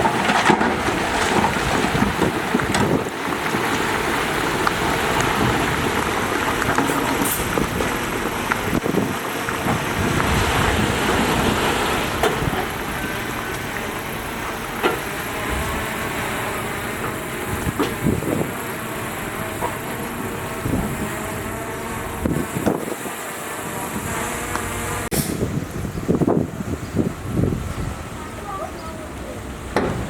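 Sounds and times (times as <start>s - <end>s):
heavy machinery engine running: 0.0s - 26.2s
sharp knocks: 29.8s - 30.0s.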